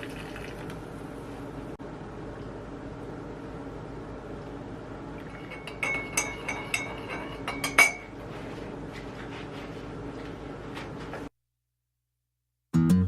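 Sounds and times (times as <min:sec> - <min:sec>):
steady low hum: 0:00.0 - 0:11.2
dishes clinking: 0:05.2 - 0:08.2.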